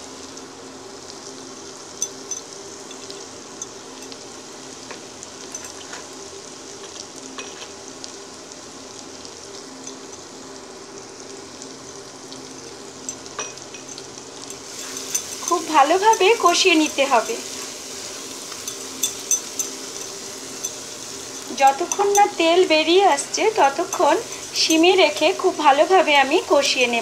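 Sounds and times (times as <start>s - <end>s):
paste sizzling in oil: 0.0s - 27.0s
spatula scraping pan: 14.5s - 22.4s, 23.6s - 25.0s.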